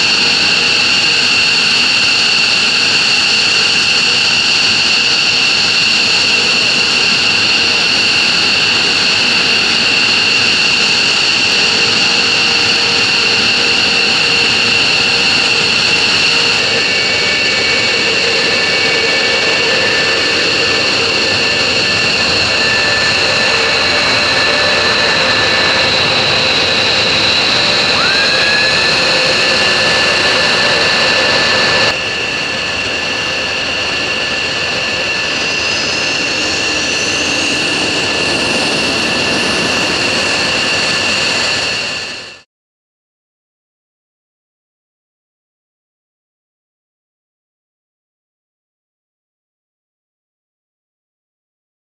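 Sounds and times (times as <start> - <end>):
jet engines whining: 0.0 - 42.4
short rising whistle: 18.1 - 31.9.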